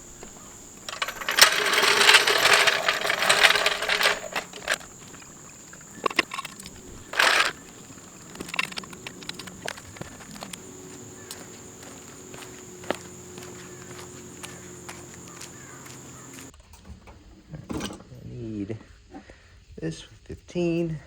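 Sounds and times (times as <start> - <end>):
metal hand tools clattering: 0.0 - 16.5
sharp clicks: 0.0 - 16.5.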